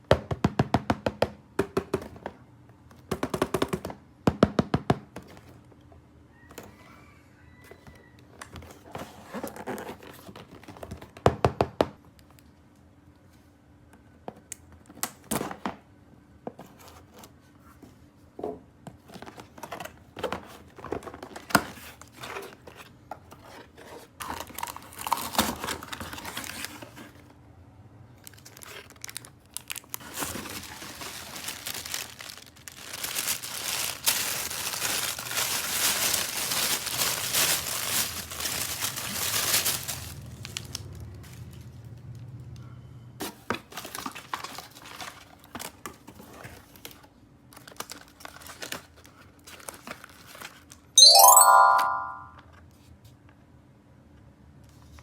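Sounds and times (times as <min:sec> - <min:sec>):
packaging crinkling and tearing: 0:23.5 - 0:27.2, 0:28.2 - 0:41.4, 0:43.7 - 0:45.7, 0:46.7 - 0:50.8.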